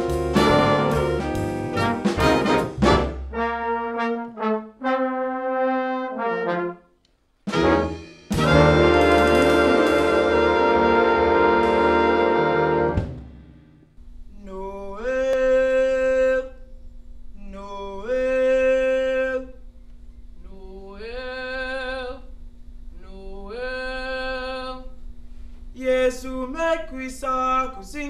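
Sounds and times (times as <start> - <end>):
unaccompanied voices singing: 0.0 - 2.7
brass ensemble chord: 0.0 - 13.8.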